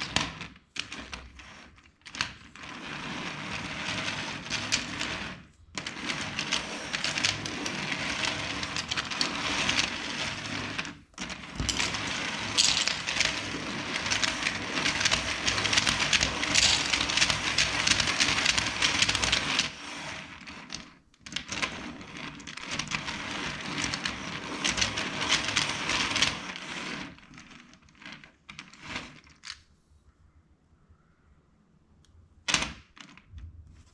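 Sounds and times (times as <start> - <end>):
plastic bricks clicking and rattling: 3.9 - 5.2, 5.8 - 29.6.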